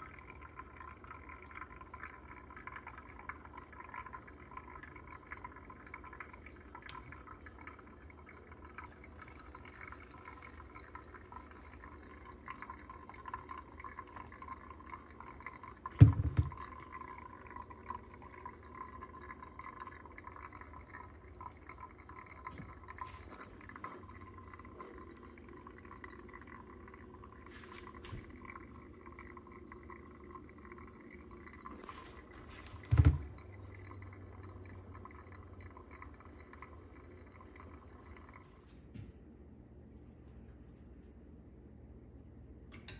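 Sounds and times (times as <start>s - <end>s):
coffee trickling: 0.0s - 39.0s
dull thump: 16.0s - 16.6s.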